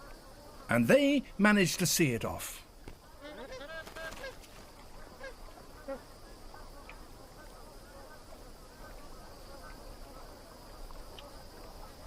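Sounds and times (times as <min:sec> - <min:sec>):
geese honking: 0:03.2 - 0:04.4.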